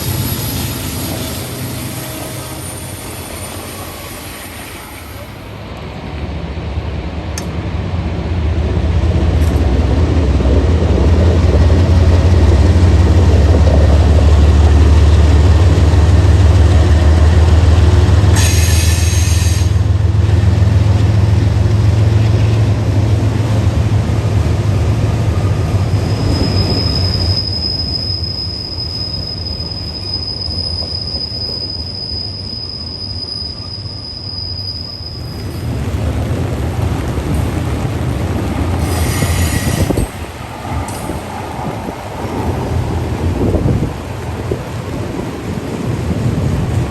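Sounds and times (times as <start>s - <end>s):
train wheel squeal: 0.0s - 5.6s, 18.4s - 19.9s, 25.4s - 35.8s, 38.7s - 42.4s
train rumbling past: 0.0s - 46.9s.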